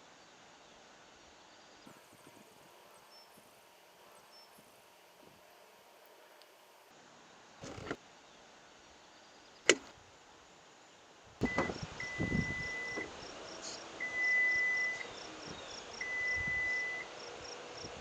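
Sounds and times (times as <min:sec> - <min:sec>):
sharp click: 0:09.7 - 0:09.9.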